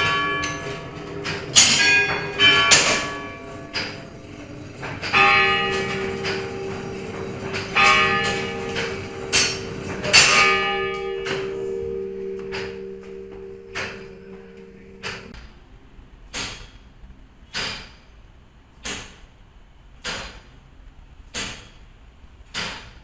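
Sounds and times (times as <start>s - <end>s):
bells struck: 0.0s - 15.4s
hum of larger bells: 0.0s - 15.4s.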